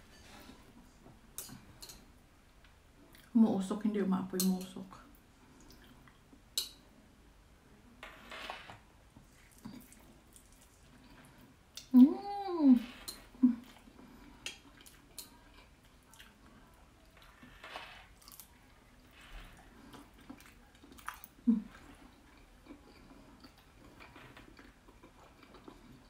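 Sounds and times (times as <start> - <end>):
person chewing noodles: 9.3 - 11.9, 13.6 - 17.4, 18.2 - 26.0
person humming mm: 11.8 - 13.7.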